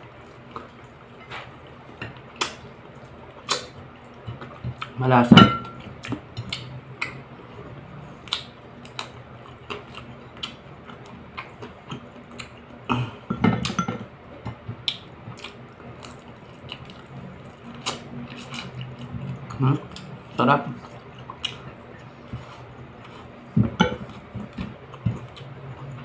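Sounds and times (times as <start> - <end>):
man chewing with mouth clicks: 0.0 - 5.0, 5.8 - 26.0
lip smacks: 3.4 - 3.8.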